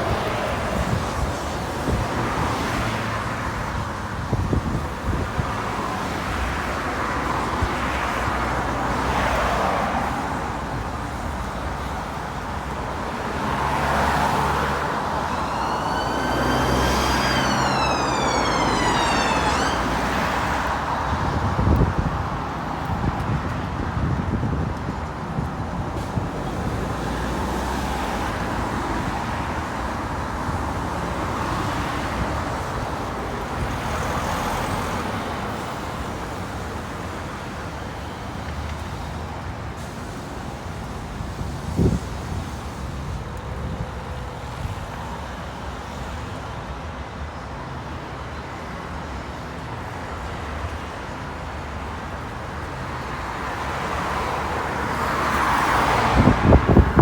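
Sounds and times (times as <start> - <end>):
road traffic passing: 0.0 - 22.7, 48.0 - 57.0.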